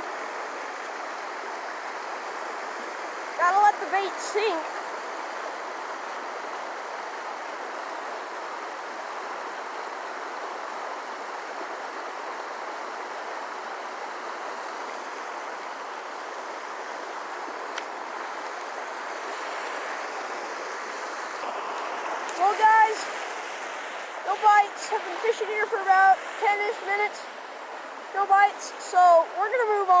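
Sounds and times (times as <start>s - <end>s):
creek water flowing: 0.0s - 30.0s.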